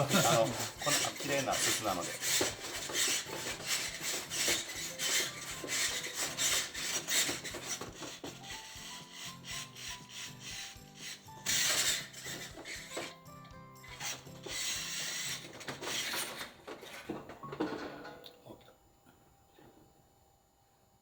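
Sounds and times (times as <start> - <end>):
stiff brush scrubbing soot: 0.0 - 15.6.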